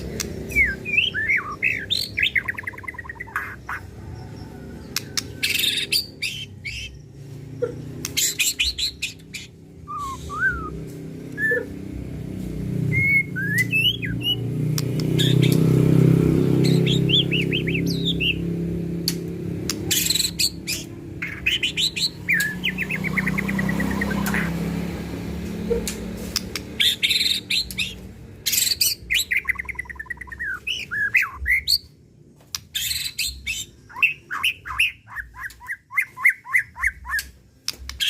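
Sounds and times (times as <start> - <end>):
songbird singing: 0.0 - 12.0, 12.7 - 38.0.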